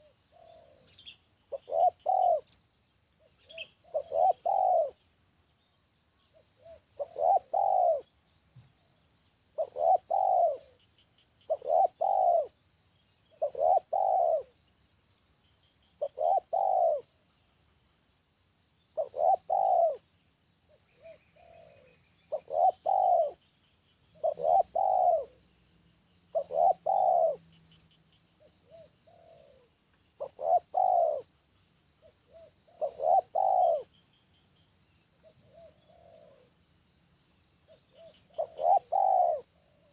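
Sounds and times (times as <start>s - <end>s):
dove cooing: 0.0s - 2.6s, 3.2s - 5.1s, 6.3s - 8.1s, 9.6s - 10.8s, 11.4s - 12.6s, 13.3s - 14.6s, 16.0s - 17.1s, 19.0s - 20.1s, 20.9s - 23.4s, 24.1s - 25.4s, 26.3s - 27.4s, 28.4s - 31.3s, 32.0s - 34.0s, 35.2s - 36.6s, 37.7s - 39.9s.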